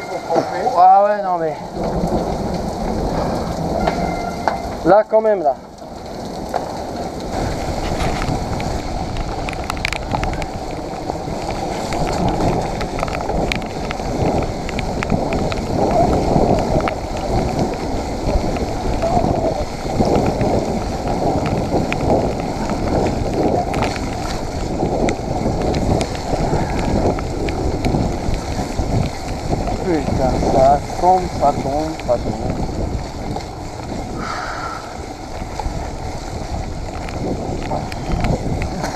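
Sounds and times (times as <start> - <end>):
bike tyre noise: 0.0 - 38.9
wind buffeting microphone: 0.0 - 38.9
bike clicks and knocks: 7.8 - 17.9.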